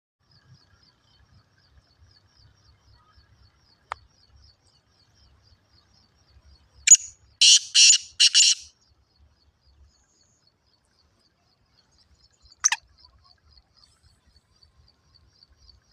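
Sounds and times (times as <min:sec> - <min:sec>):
faint fast high ticking: 0:06.9 - 0:08.7
francolin calling harshly: 0:06.9 - 0:08.7.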